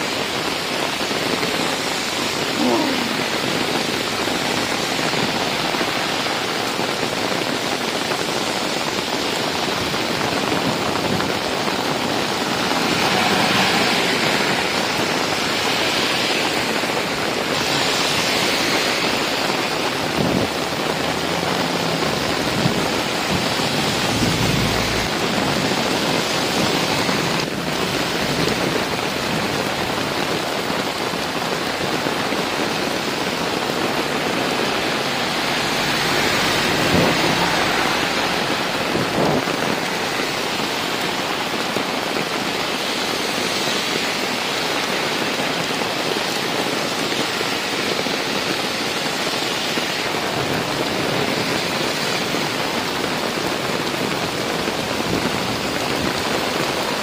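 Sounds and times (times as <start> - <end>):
heavy rain pouring: 0.0 - 57.0
vehicles hissing through water: 0.2 - 30.9, 33.0 - 45.3
low engine sound: 20.9 - 26.0.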